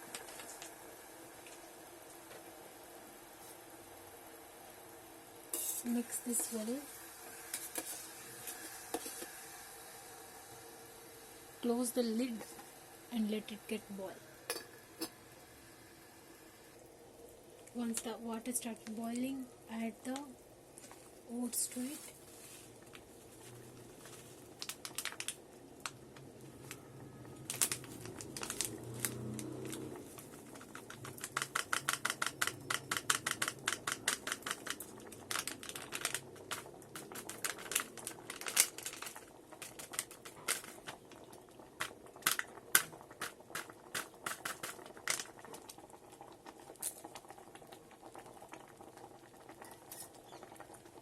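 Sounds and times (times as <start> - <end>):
metal spoon tapping containers: 30.7 - 34.8.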